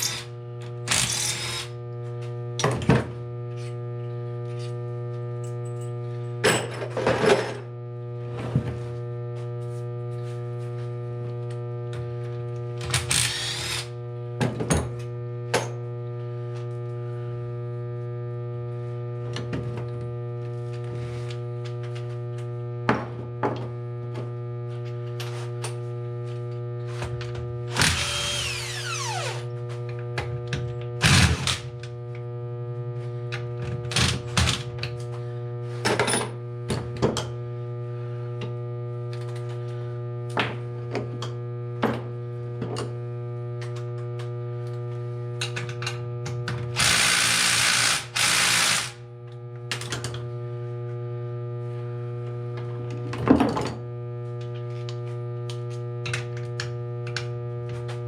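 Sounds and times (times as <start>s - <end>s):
steady electrical hum: 0.0s - 14.4s, 15.0s - 36.7s.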